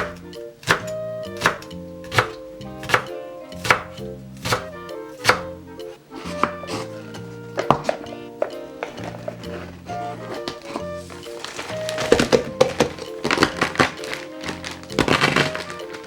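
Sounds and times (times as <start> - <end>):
knife chopping on cutting board: 0.0 - 5.5, 6.2 - 7.0, 7.6 - 9.6, 12.0 - 15.7.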